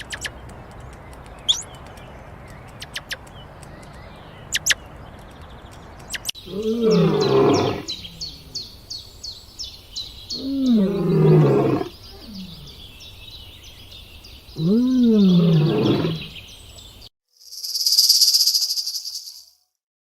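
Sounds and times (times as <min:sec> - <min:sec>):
rapid chirping: 0:00.0 - 0:10.4, 0:17.4 - 0:19.5
large animal roaring: 0:06.4 - 0:08.4, 0:10.4 - 0:12.9, 0:14.6 - 0:16.4.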